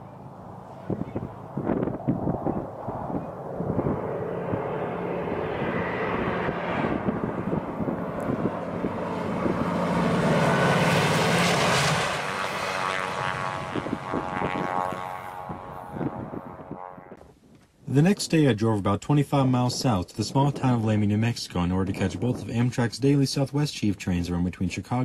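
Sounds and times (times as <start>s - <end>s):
diesel locomotive engine drone: 0.0s - 17.2s.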